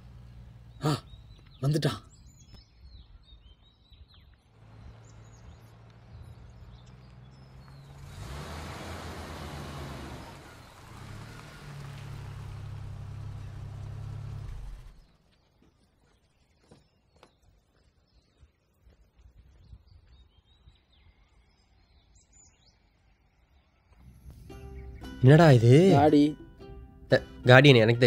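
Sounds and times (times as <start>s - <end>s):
car engine running: 0.0s - 1.6s, 4.6s - 15.0s, 24.0s - 27.9s
birds chirping: 0.0s - 28.0s.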